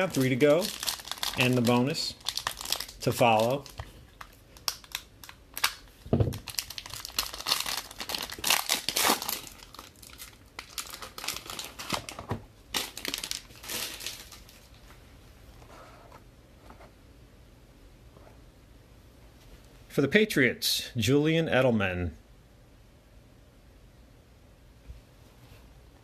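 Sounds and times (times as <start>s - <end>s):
plastic wrapping tearing and crinkling: 0.0s - 14.7s.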